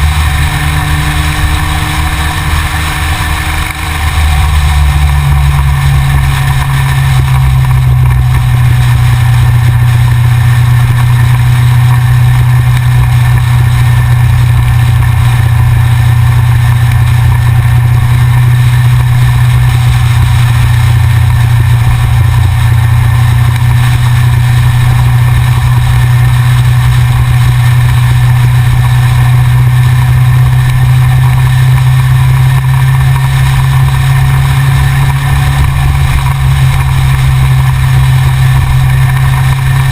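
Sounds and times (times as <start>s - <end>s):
motorcycle engine cruising: 0.0s - 39.9s
road and wind noise: 0.0s - 39.9s.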